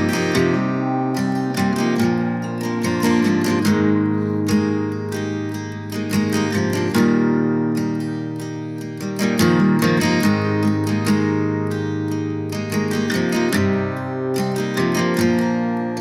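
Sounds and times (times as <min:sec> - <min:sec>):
acoustic guitar strummed and picked: 0:00.0 - 0:16.0.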